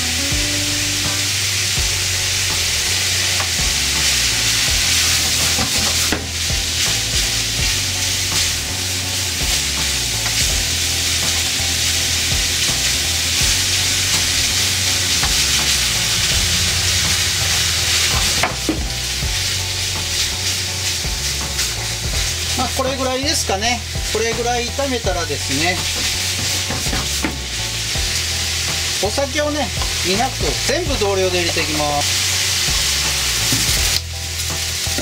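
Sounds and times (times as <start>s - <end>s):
beef sizzling in a frying pan: 0.0s - 35.0s
spatula knocking on pan: 18.1s - 19.0s, 25.9s - 27.5s.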